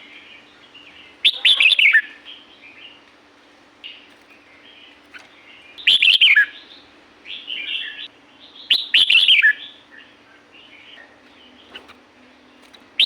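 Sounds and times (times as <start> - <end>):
bird warbling and chirping: 0.0 - 3.0, 3.8 - 12.0.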